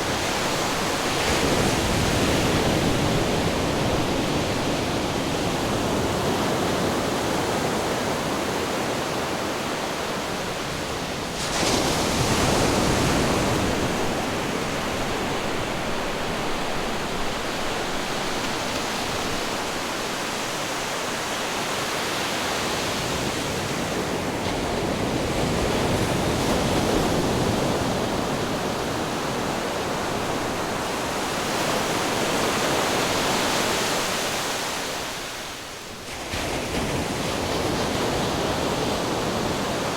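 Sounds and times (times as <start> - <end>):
ocean waves washing in: 0.0 - 24.4.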